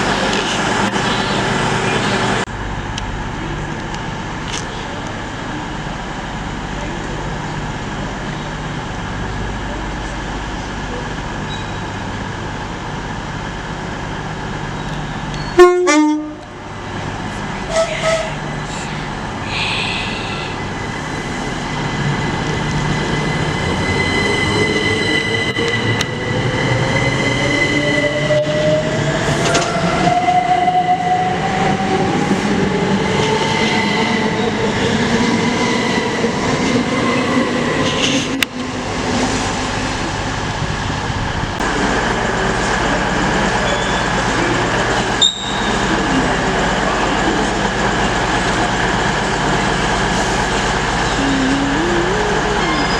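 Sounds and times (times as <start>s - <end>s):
train running noise: 0.0s - 52.9s
train horn blast: 15.6s - 16.6s, 17.7s - 18.4s.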